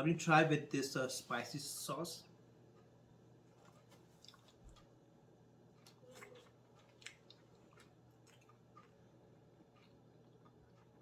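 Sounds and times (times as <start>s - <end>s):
soft chewing smacks: 2.6s - 11.0s.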